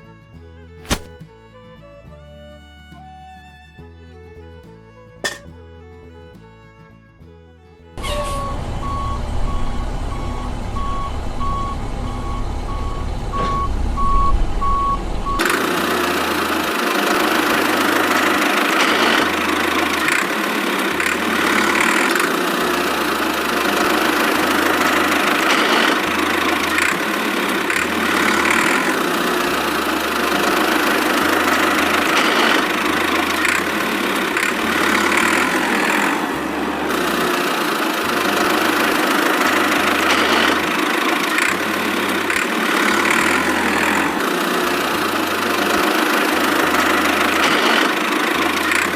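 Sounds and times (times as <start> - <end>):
small machine motor running: 15.4 - 48.9.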